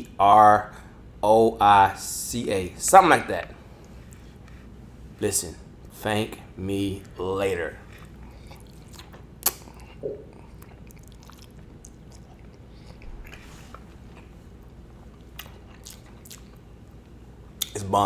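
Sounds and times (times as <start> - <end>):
person chewing food: 7.0 - 17.8
wet mouth clicks: 8.0 - 13.5, 15.2 - 16.6.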